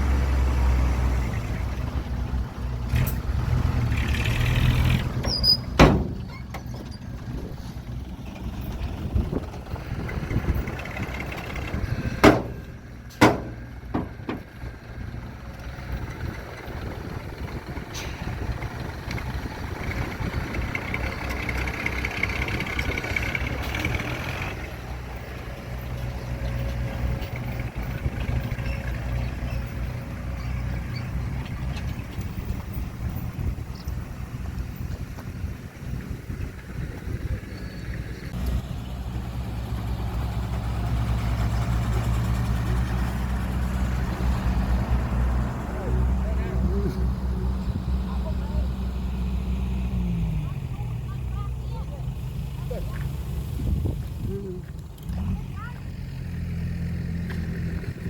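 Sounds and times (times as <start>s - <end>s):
heavy diesel machinery droning: 0.0s - 58.0s
sharp metal clank: 12.2s - 14.5s.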